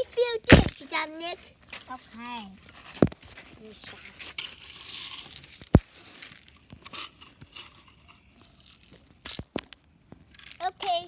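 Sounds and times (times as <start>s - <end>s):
toy tools scraping loose ground: 0.0s - 11.0s.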